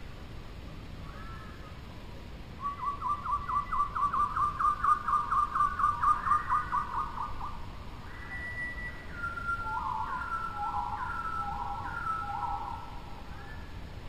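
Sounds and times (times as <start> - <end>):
bird calling: 1.0 - 1.8, 2.6 - 13.8
long whistled bird notes: 2.6 - 13.8.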